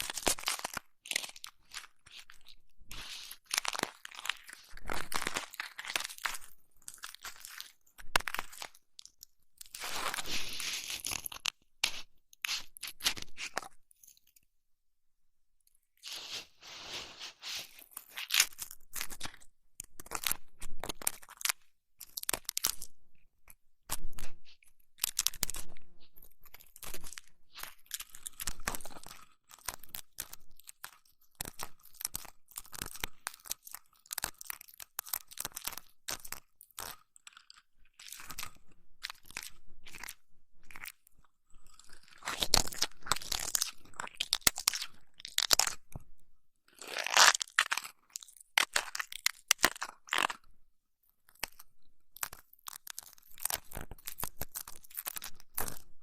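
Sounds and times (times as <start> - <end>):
crackling and rubbing at microphone: 0.0 - 8.8, 9.6 - 13.8, 16.0 - 45.9.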